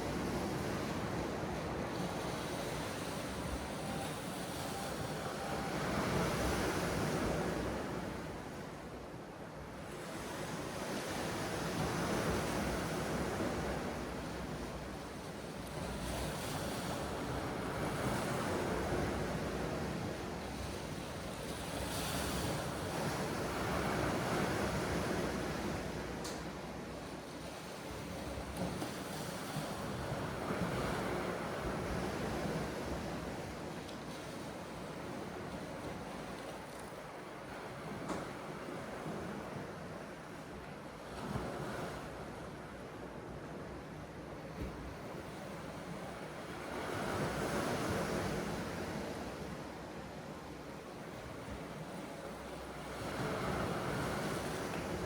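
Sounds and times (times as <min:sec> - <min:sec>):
wind: 0:00.0 - 0:55.0
sea waves washing on shore: 0:44.4 - 0:55.0.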